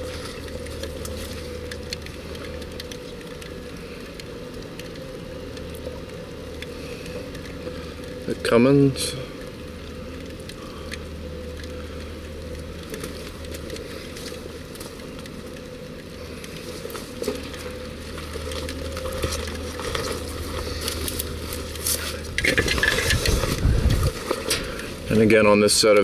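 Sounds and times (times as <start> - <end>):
small clicks and rattles: 0.0 - 26.0.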